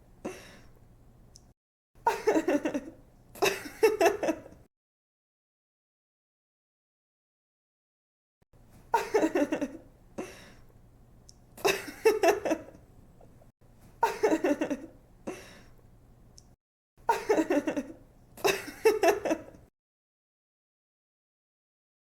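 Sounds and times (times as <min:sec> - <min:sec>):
young woman giggling: 0:02.1 - 0:04.6, 0:08.9 - 0:09.8, 0:11.6 - 0:12.8, 0:14.0 - 0:15.4, 0:17.1 - 0:19.6.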